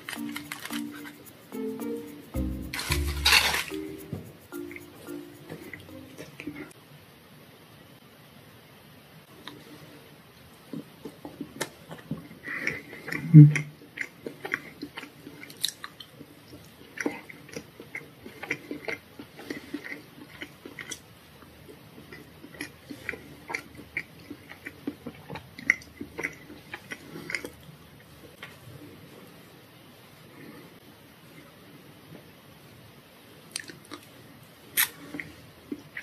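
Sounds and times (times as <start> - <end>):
person chewing: 10.7 - 21.1, 22.0 - 27.6
mouth clicks and crackles: 33.5 - 34.1.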